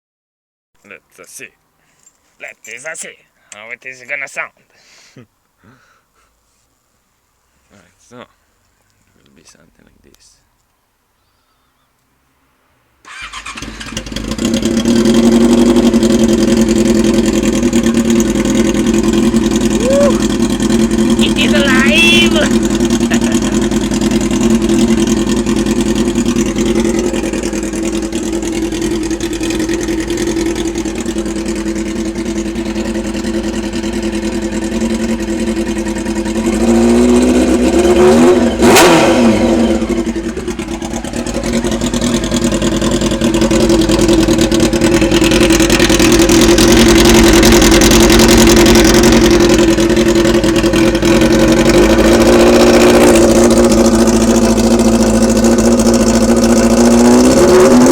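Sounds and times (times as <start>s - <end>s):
exhaust crack: 13.0s - 57.9s
motorcycle engine revving: 13.1s - 57.9s.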